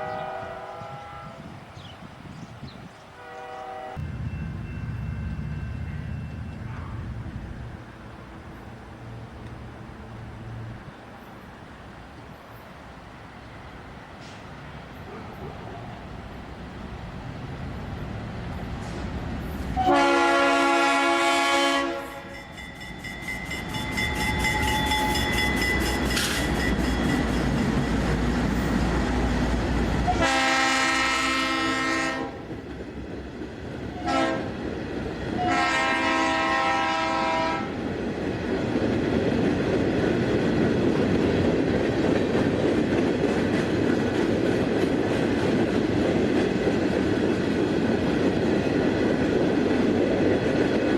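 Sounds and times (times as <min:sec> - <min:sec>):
locomotive air horn blasts: 0:00.0 - 0:01.6, 0:03.2 - 0:07.2, 0:19.8 - 0:27.3, 0:30.1 - 0:32.4, 0:34.0 - 0:34.5, 0:35.4 - 0:37.8
train rumbling past: 0:00.0 - 0:50.9
wheels clacking over rail joints: 0:22.4 - 0:30.3, 0:37.8 - 0:50.9.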